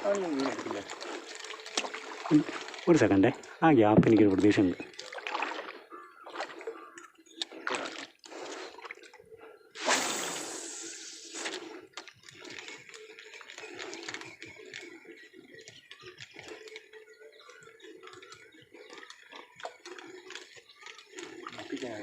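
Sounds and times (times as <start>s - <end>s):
water sounds: 0.0s - 22.0s
fishing rod cast whoosh: 9.8s - 11.6s.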